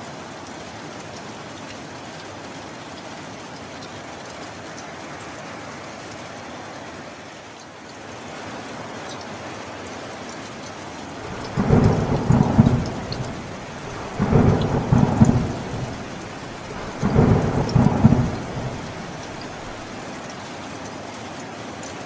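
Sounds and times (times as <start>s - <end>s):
steady rain: 0.0s - 22.0s
thunder rumbles: 11.2s - 19.9s.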